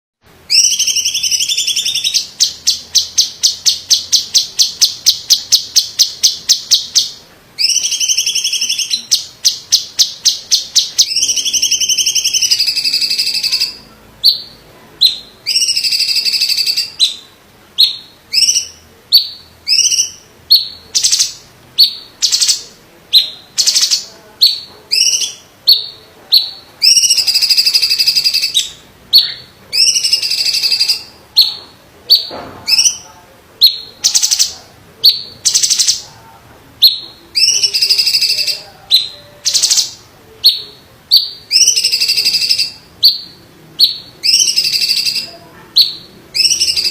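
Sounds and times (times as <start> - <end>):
bird singing shrilly: 0.5 - 36.0, 36.8 - 46.9.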